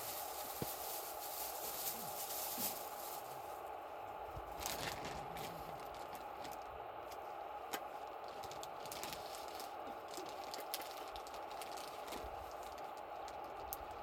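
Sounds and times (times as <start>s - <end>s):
campfire popping and snapping: 4.4s - 14.0s.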